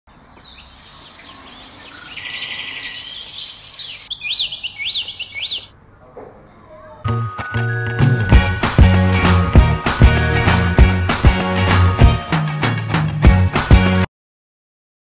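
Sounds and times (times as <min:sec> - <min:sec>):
birds chirping and calling: 0:00.1 - 0:05.8
bird trill: 0:00.2 - 0:05.8
whistled bird notes: 0:00.4 - 0:05.7.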